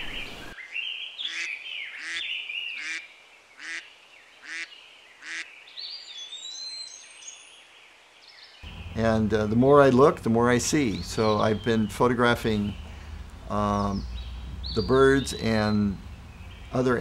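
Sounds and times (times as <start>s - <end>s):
bird harsh call: 0.0s - 5.6s
small birds chirping and warbling: 0.0s - 17.0s.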